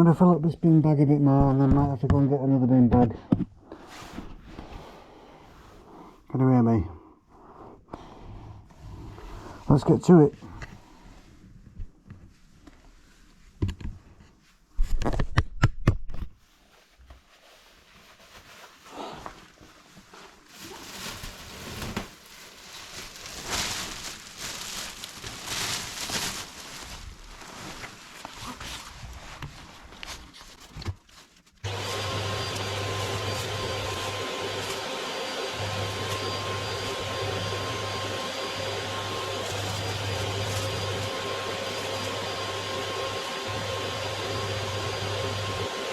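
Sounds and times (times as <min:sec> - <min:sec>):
debris rustling: 0:20.5 - 0:28.3
vacuum cleaner running: 0:31.6 - 0:45.9.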